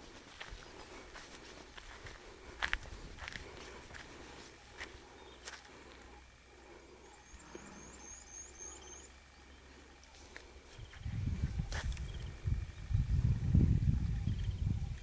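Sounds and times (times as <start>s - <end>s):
small bird chirping: 4.4s - 15.0s.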